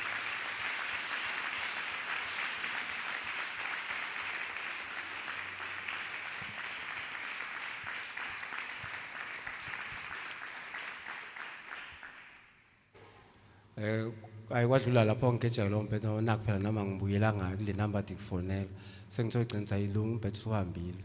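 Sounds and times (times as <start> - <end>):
congregation applauding: 0.0 - 12.8.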